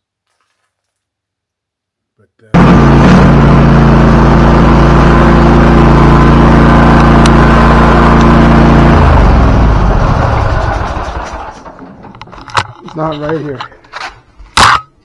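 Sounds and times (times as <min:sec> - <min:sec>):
lawnmower engine running: 0:02.6 - 0:14.0.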